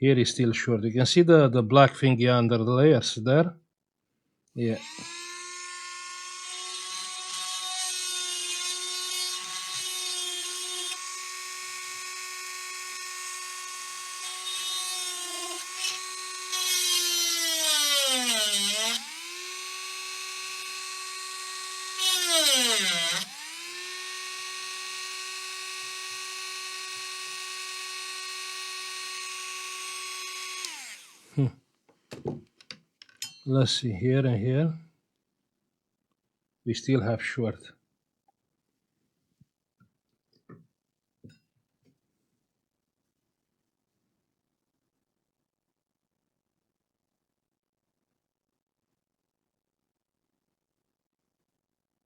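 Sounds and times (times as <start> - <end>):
rotary tool whining: 4.8 - 31.3.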